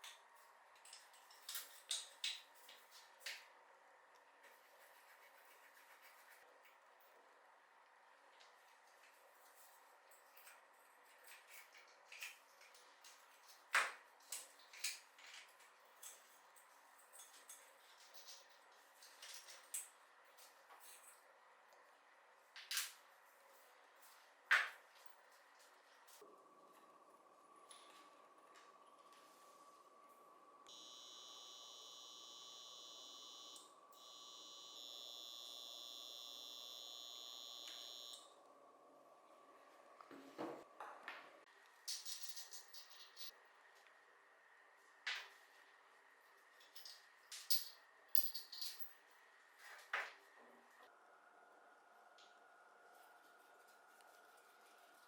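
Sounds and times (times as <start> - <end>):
high-pitched electric whine: 30.7 - 38.4.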